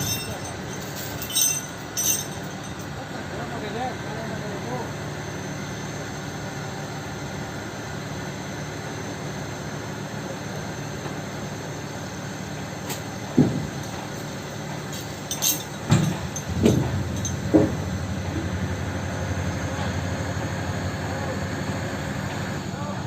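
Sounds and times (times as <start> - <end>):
sharp metallic clinks and knocks: 0.0 - 3.0, 13.4 - 18.6
truck diesel engine idling: 0.0 - 23.0.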